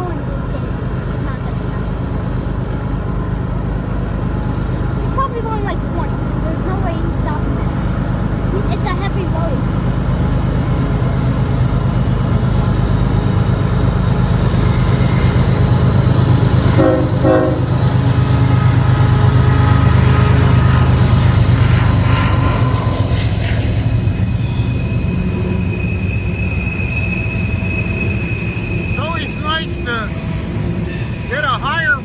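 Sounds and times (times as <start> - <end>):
freight train rumbling past: 0.0 - 32.0
high wheel squeal: 7.5 - 32.0
train horn: 16.5 - 23.8.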